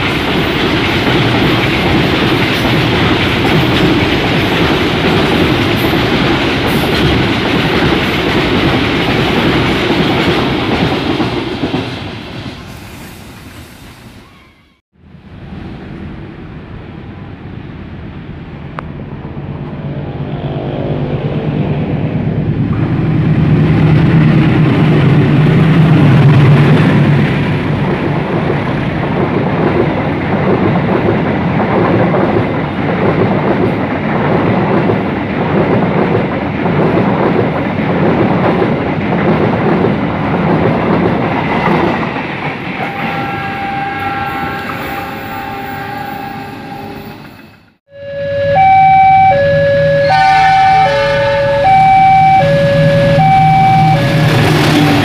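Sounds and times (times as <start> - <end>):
train wheels clacking on rails: 0.0 - 13.6, 22.7 - 45.8
chord of tones: 47.9 - 55.0.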